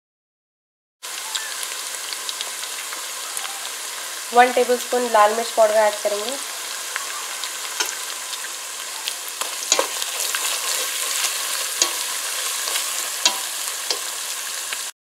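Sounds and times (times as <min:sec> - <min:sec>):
hot oil sizzling: 0:01.0 - 0:15.0
spatula scraping metal pot: 0:09.4 - 0:14.2.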